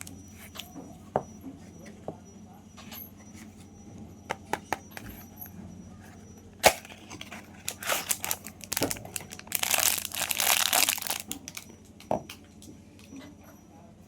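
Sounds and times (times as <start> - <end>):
wrapper being torn open: 7.7 - 11.6.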